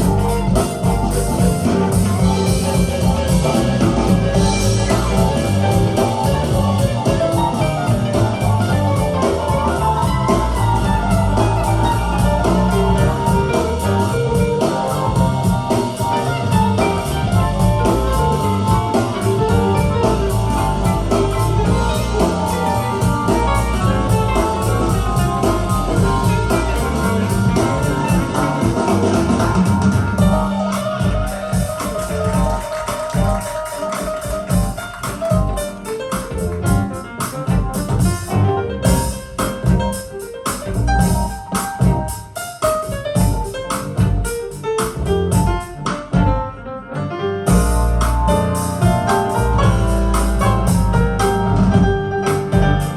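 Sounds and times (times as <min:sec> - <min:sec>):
music with strong bass over loudspeakers: 0:00.0 - 0:35.6, 0:40.7 - 0:42.3, 0:47.5 - 0:52.9.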